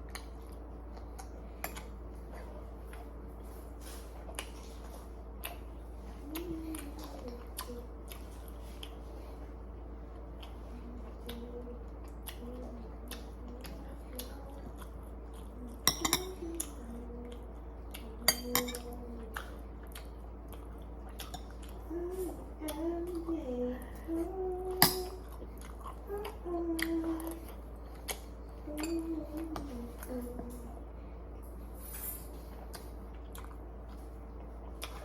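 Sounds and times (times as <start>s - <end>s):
utensils clinking on dishes: 15.9s - 16.4s, 18.3s - 19.0s.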